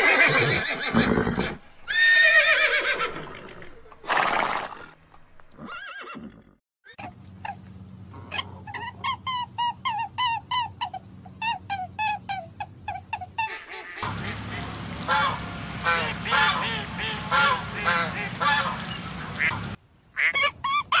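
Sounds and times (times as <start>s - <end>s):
horse neighing and snorting: 0.0s - 7.0s.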